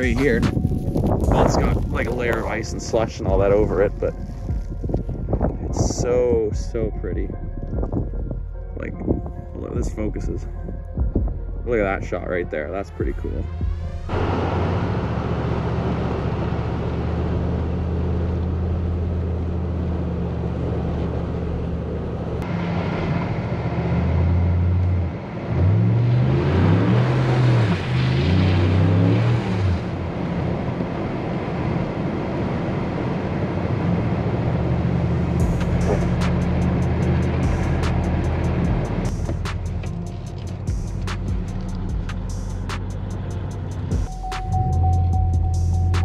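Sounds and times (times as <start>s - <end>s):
car engine revving: 13.2s - 46.0s.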